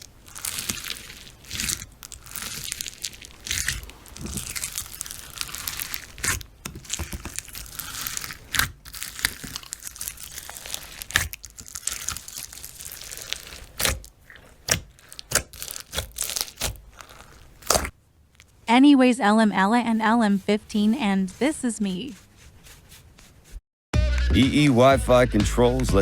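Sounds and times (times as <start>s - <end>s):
slime squished by hand: 0.0s - 18.5s.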